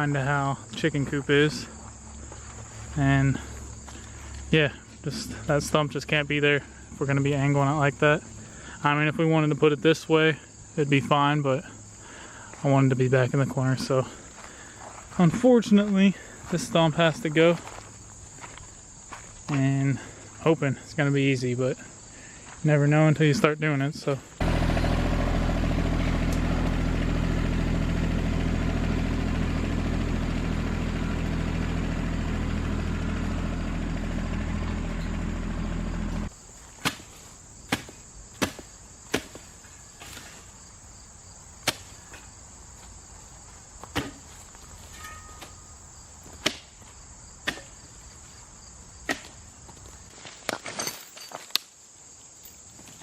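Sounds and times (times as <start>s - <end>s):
insects chirring: 0.0s - 24.4s, 36.3s - 53.0s
tractor engine idling: 24.4s - 36.3s.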